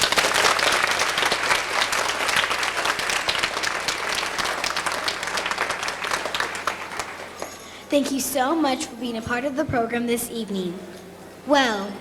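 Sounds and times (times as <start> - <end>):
crowd applauding: 0.0 - 7.8.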